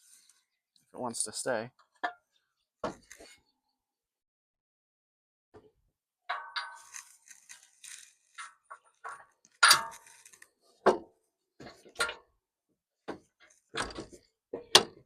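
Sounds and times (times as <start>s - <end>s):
metal clinks and clanks: 6.3s - 10.4s.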